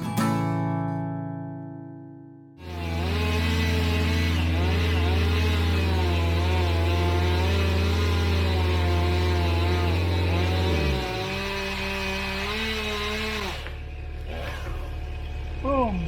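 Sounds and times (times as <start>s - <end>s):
engine running steadily: 2.6s - 16.0s.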